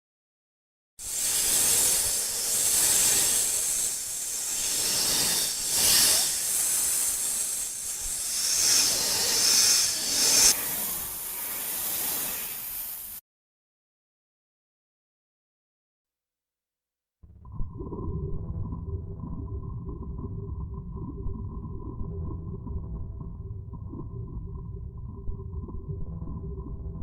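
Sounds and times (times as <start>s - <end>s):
animal hissing: 1.0s - 13.2s.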